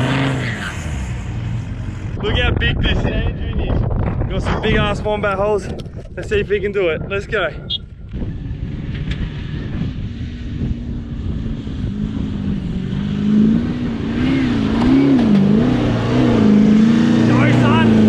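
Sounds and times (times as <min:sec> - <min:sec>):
engine revving hard: 0:00.0 - 0:01.3, 0:11.3 - 0:18.0.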